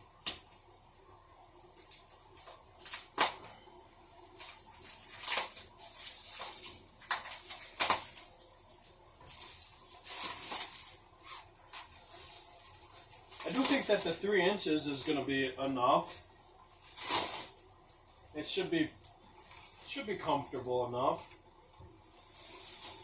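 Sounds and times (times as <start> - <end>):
plastic packaging crinkling: 4.1 - 14.3, 16.0 - 20.6, 22.0 - 23.0.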